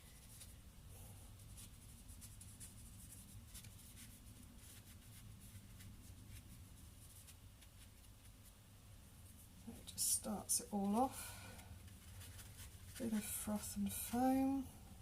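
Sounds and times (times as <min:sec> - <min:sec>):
low room hum: 0:00.0 - 0:15.0
paintbrush scratching on canvas: 0:01.4 - 0:08.5.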